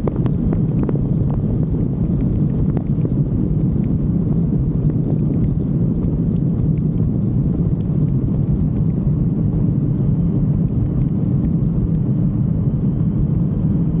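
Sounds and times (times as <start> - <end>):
jet ski engine rumbling: 6.6 - 14.0.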